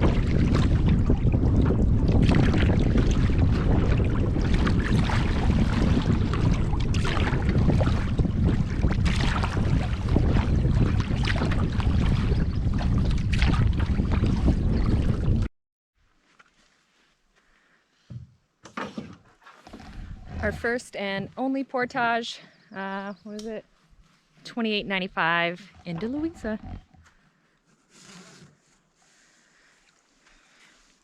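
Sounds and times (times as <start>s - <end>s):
water splashes: 0.0s - 15.5s, 24.6s - 27.0s
wind buffeting microphone: 0.0s - 15.5s, 19.7s - 23.6s, 24.5s - 27.0s.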